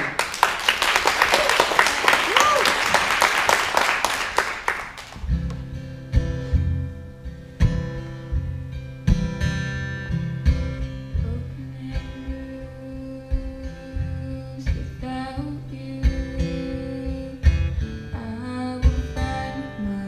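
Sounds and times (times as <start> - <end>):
applause: 0.0 - 5.3.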